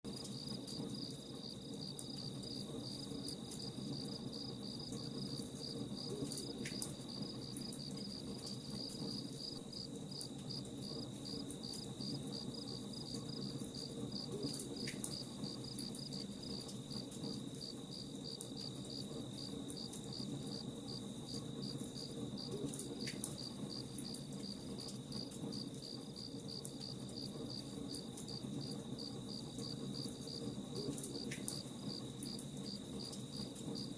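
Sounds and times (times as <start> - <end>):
crackling campfire: 0.1 - 33.9
crickets chirping: 0.1 - 33.9
fire popping and snapping: 2.0 - 28.8.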